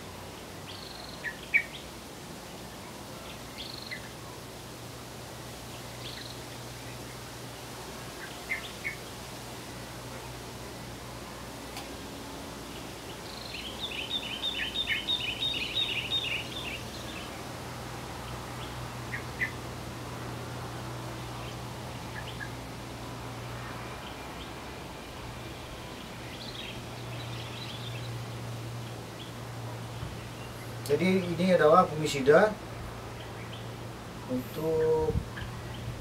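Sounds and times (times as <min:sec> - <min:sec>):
birds chirping: 0:00.0 - 0:04.6, 0:05.5 - 0:36.0.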